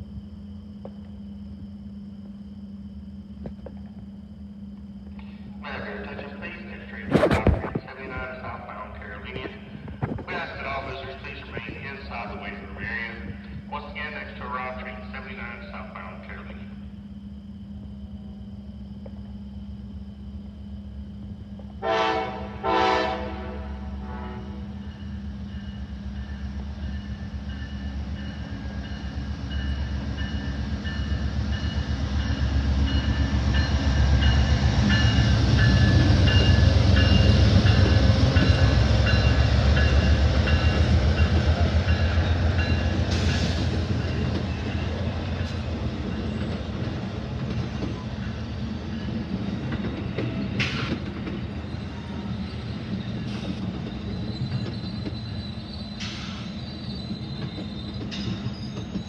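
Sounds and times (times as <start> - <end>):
train passing rumble: 0.0 - 59.0
train horn blasts: 21.8 - 24.8.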